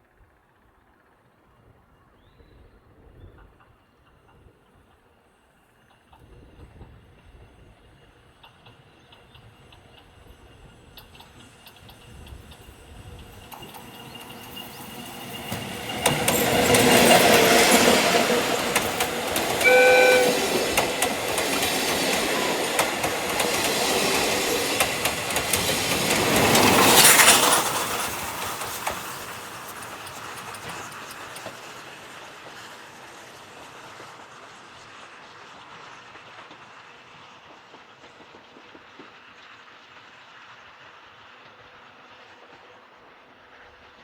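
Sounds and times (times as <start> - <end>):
train passing on rails: 0.0 - 44.0
train whistle blast: 19.4 - 21.0.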